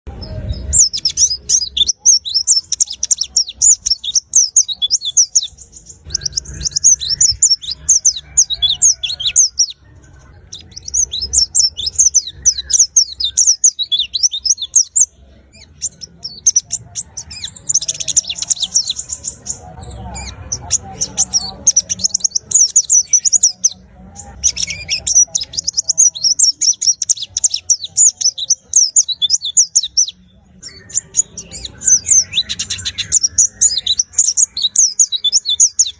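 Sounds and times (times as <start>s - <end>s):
bird twittering song: 0.1s - 35.9s.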